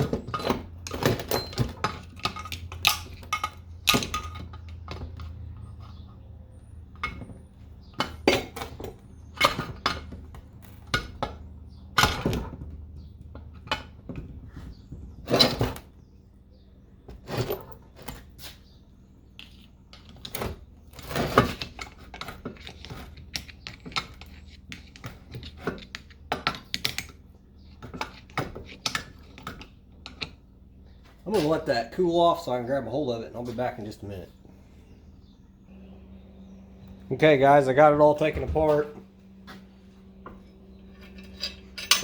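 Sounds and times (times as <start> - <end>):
metal clanks and scrapes: 14.8 - 15.8, 19.4 - 26.3, 40.3 - 42.0.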